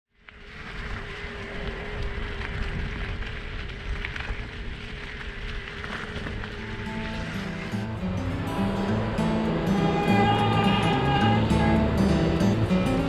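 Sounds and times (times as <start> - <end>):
wind buffeting microphone: 0.6 - 13.0
low riding rumble: 6.5 - 13.0
steady whine: 6.5 - 13.0.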